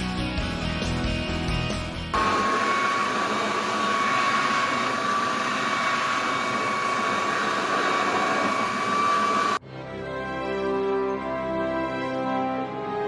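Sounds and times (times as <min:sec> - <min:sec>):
electric motor whining: 0:02.2 - 0:09.6
loud rushing hiss: 0:02.2 - 0:09.6.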